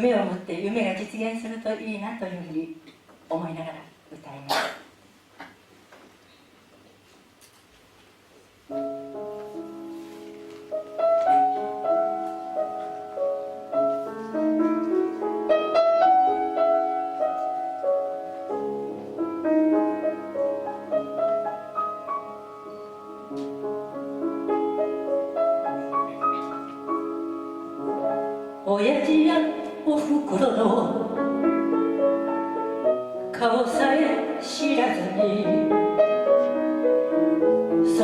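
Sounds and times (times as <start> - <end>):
piano melody over chords: 8.7 - 38.0.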